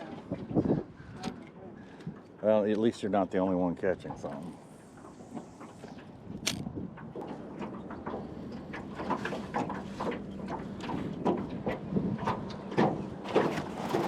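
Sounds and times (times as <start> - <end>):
gear clunking and rattling in boat: 5.4 - 14.0.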